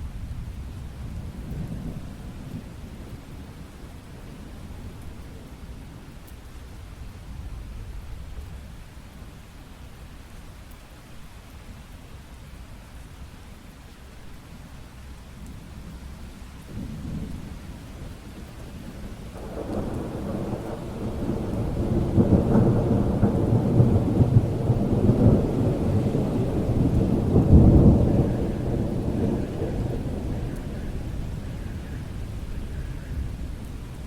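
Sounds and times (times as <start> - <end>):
steady rain: 0.0 - 34.0
thunder rumbling: 16.7 - 34.0.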